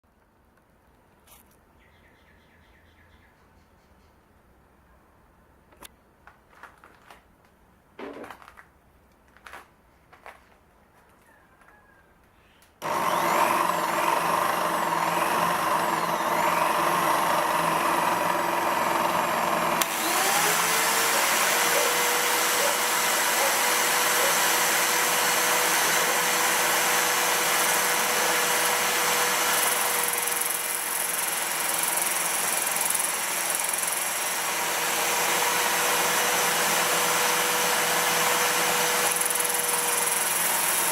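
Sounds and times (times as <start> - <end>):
grinder motor running: 12.8 - 40.9.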